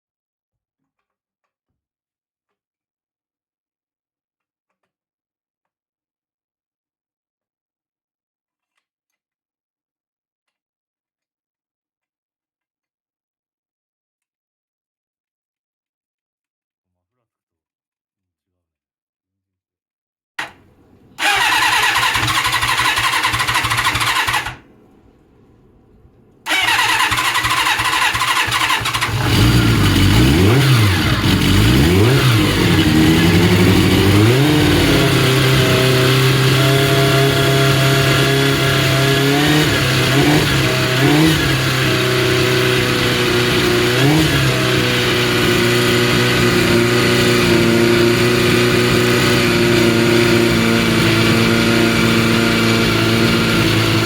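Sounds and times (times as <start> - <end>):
engine starter cranking: 20.4 - 24.8, 26.5 - 45.5
motorcycle engine revving: 20.4 - 25.6, 26.5 - 54.0
motorcycle engine idling: 20.7 - 25.0, 26.5 - 48.2.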